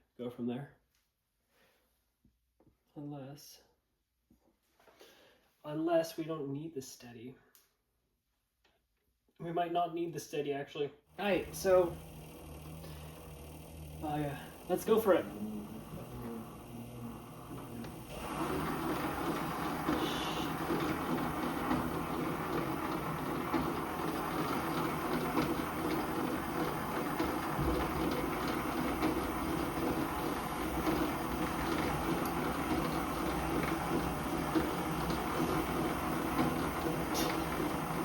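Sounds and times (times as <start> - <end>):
metal lathe running: 11.2 - 38.0.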